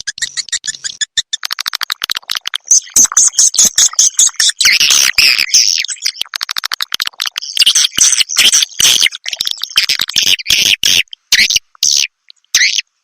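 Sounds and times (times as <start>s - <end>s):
rapid clicks: 0.0s - 4.0s, 6.3s - 7.4s.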